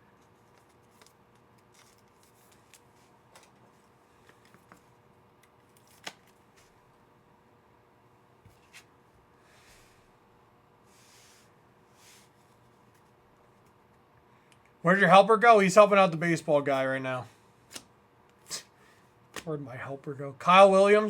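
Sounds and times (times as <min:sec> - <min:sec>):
trading cards being handled: 0:00.2 - 0:06.8.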